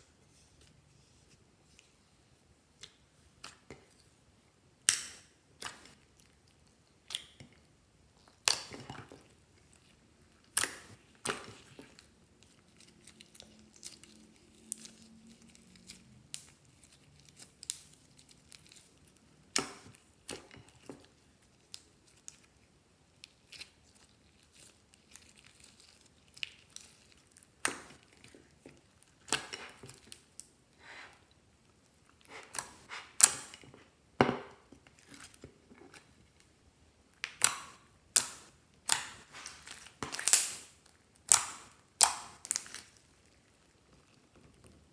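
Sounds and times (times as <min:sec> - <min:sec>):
slime squelching: 0:02.7 - 0:44.9
slime popping and crackling: 0:37.2 - 0:43.6.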